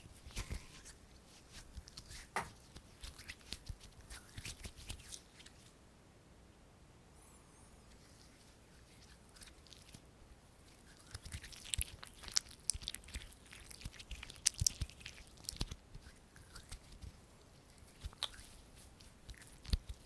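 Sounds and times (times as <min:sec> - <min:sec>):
fingers clicking and crackling: 0:10.9 - 0:20.0.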